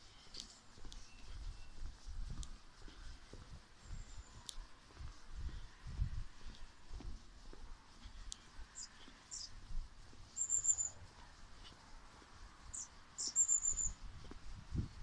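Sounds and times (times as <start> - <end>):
songbird singing high notes: 10.3 - 11.0, 12.7 - 14.0.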